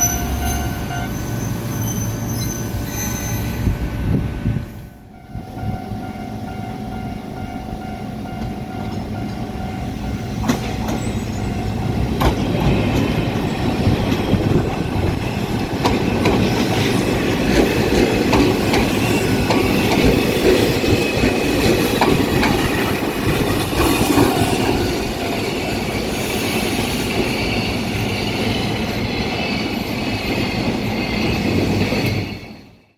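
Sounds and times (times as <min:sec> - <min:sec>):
wheel squeal: 0:00.0 - 0:03.8, 0:10.6 - 0:11.8, 0:23.8 - 0:32.8
electric train running: 0:00.0 - 0:32.9
wheels clattering over rail joints: 0:08.3 - 0:27.6.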